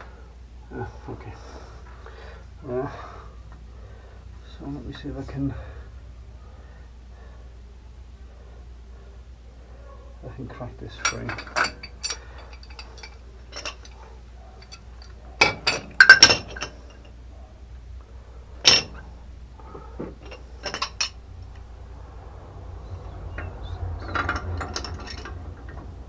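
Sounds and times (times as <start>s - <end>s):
wrenches clinking on metal pipe: 10.9s - 17.2s, 18.6s - 19.1s, 19.8s - 21.2s, 23.3s - 26.0s.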